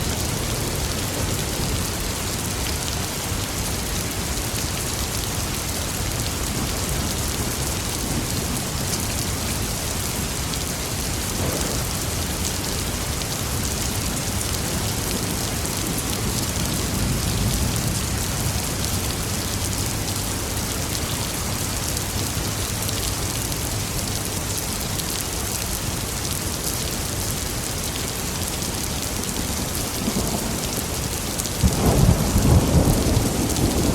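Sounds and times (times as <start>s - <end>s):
heavy rain falling: 0.0s - 33.9s
thunder rumbling: 11.2s - 12.7s, 29.4s - 33.9s.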